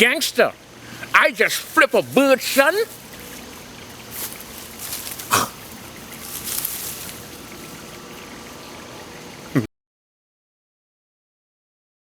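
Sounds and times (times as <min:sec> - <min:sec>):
outdoor background hiss: 0:00.0 - 0:09.7
faint rustling: 0:02.9 - 0:07.9.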